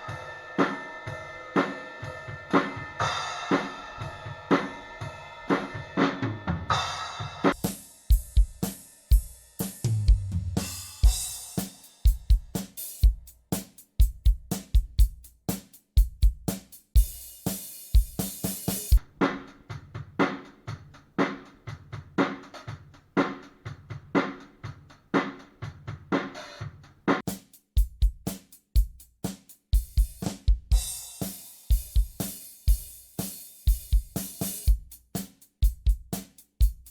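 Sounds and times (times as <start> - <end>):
cymbal wash: 0.0 - 9.8
drum kit groove: 0.0 - 36.9.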